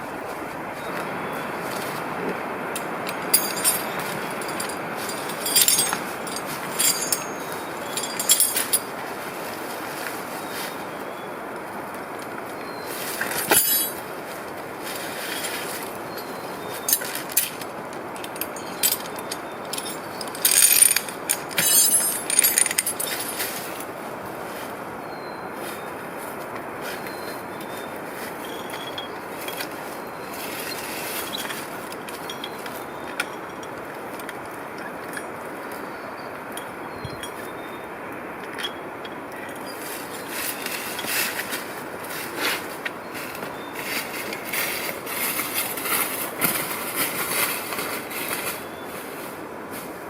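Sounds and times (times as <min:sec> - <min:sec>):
metallic chain clanks: 0:02.8 - 0:09.0, 0:13.2 - 0:14.0, 0:16.2 - 0:23.9, 0:28.4 - 0:29.7, 0:30.5 - 0:34.3.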